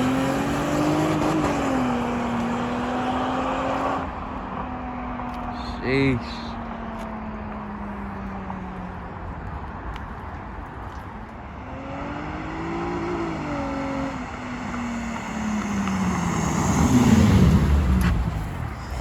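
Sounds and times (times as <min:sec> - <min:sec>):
car engine through loud exhaust: 0:11.6 - 0:19.0.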